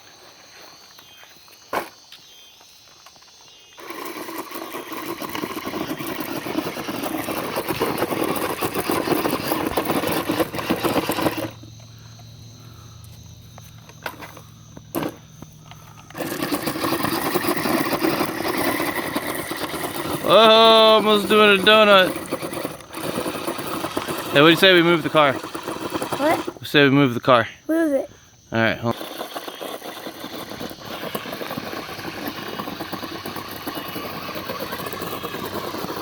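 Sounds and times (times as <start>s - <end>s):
toy truck motor running hard: 3.7s - 12.0s, 13.8s - 26.9s, 27.7s - 36.0s
gravel spraying: 3.8s - 11.7s, 15.8s - 26.8s, 28.8s - 36.0s.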